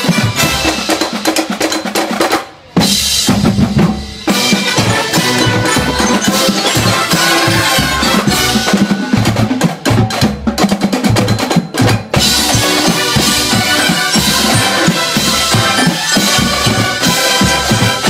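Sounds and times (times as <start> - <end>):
drum corps brass and drums: 0.0 - 18.0
sharp drum strikes: 11.1 - 18.0.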